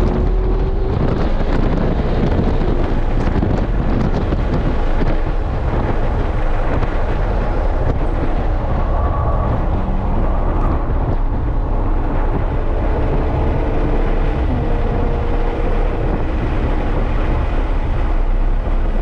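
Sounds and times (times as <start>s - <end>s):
car engine at speed: 0.0s - 19.0s
tyre and road rumble: 0.0s - 19.0s.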